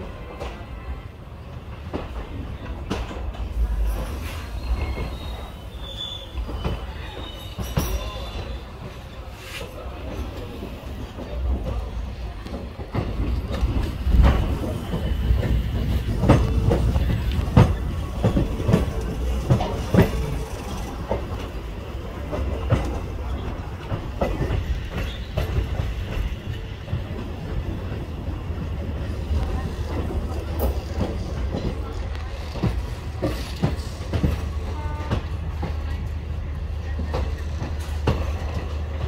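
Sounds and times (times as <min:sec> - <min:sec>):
slow train rumble: 0:00.0 - 0:39.0
faint wheel squeal: 0:04.0 - 0:08.8
wheels clacking over rail joints: 0:12.4 - 0:36.2.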